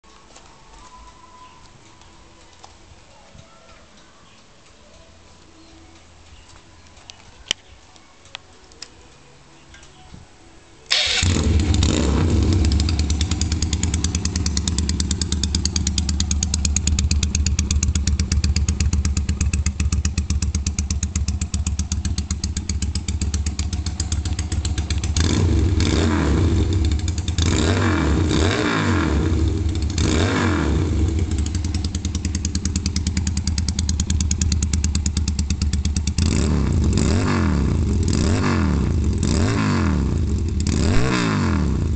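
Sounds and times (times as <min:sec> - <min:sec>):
motorcycle engine idling and revving: 0:10.9 - 0:41.9.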